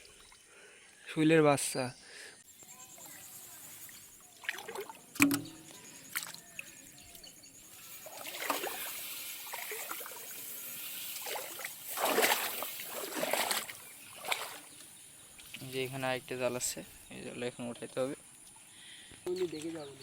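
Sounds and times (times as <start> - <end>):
shallow water sloshing: 3.6 - 6.4, 7.7 - 15.8.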